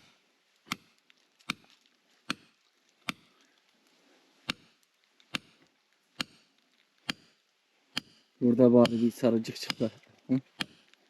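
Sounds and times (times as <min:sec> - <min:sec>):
digging tool striking hard ground: 0:00.7 - 0:01.7, 0:02.3 - 0:03.3, 0:04.4 - 0:05.6, 0:06.2 - 0:10.9.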